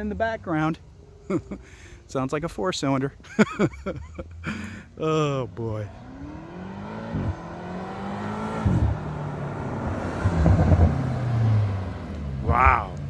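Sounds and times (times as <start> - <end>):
car engine accelerating hard: 5.6 - 13.0.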